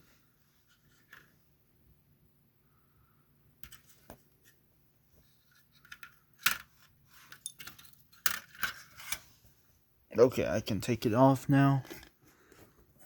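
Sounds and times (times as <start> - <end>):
toy parts clicking and clinking: 5.5 - 9.2.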